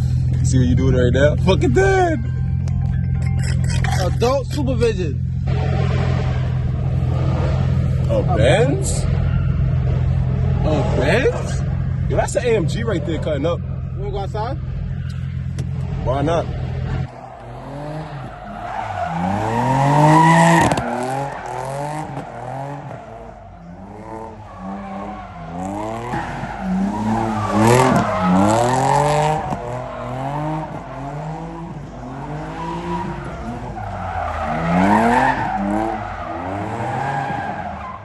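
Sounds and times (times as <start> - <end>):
car engine revving: 0.0 - 38.0
tyres squealing on pavement: 6.0 - 11.6, 17.1 - 38.0.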